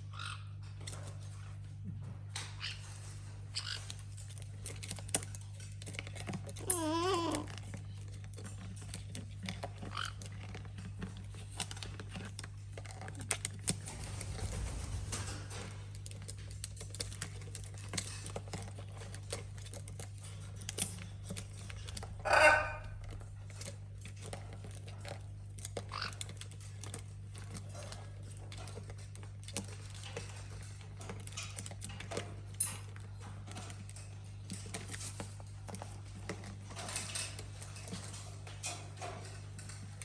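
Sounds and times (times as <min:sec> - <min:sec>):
steady low hum: 0:10.7 - 0:25.6
parrot squawk: 0:22.2 - 0:23.0.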